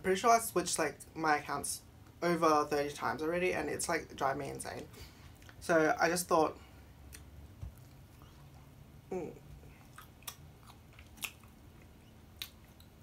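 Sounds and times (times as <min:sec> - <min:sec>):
short vocal sound: 0:09.0 - 0:09.8
person chewing food: 0:09.4 - 0:13.0.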